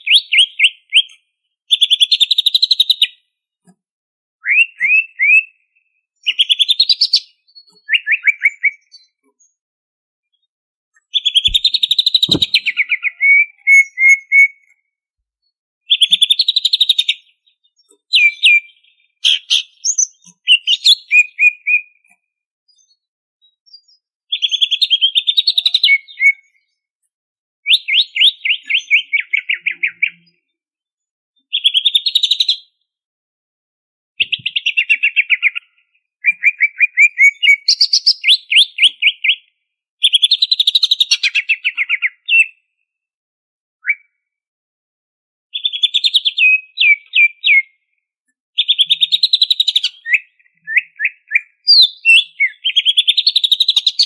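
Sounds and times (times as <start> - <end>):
bird chattering song: 0.0 - 3.2, 6.3 - 9.6, 11.0 - 14.7, 15.9 - 22.0, 24.3 - 26.6, 34.2 - 42.6, 45.5 - 47.8, 48.6 - 54.0.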